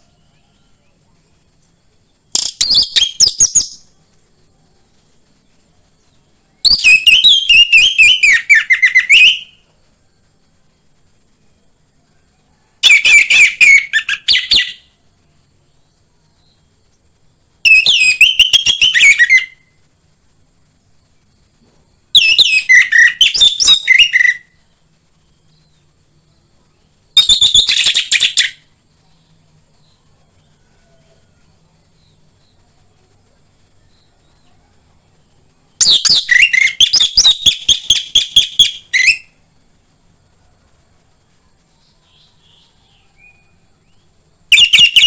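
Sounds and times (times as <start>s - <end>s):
faint high hiss: 0.0s - 45.0s
thrush whistling song: 1.8s - 4.1s, 6.0s - 10.2s, 12.6s - 15.0s, 17.4s - 19.8s, 22.0s - 26.4s, 27.1s - 28.8s, 35.7s - 39.4s, 41.8s - 45.0s.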